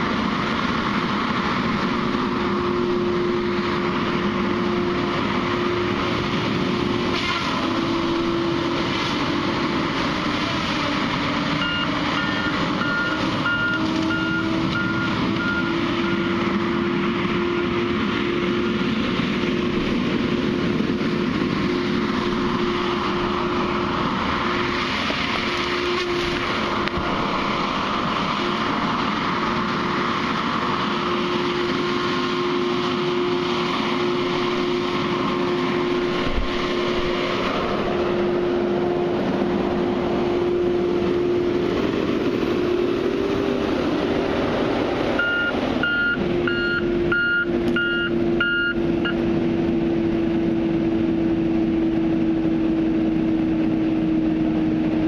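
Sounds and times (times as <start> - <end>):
heavy machine engine running: 0.0 - 55.0
reversing alarm beeping: 11.6 - 16.4, 45.2 - 49.2.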